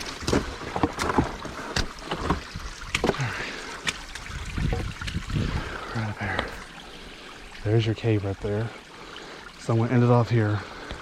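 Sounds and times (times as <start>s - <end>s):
footsteps on rocks: 0.0s - 4.0s.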